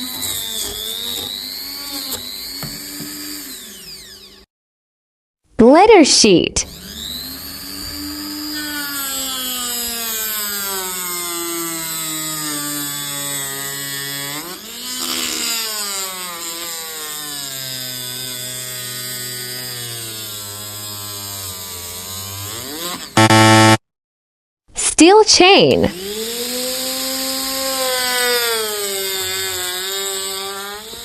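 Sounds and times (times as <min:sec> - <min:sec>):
angle grinder whining: 0:00.0 - 0:04.4, 0:06.6 - 0:15.1, 0:22.6 - 0:23.8.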